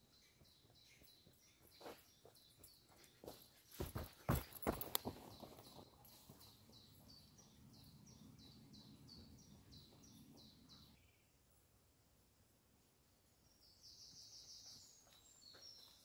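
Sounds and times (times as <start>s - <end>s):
songbird chirping: 0.0s - 11.9s, 12.7s - 16.0s
footsteps on dirt trail: 0.3s - 7.1s.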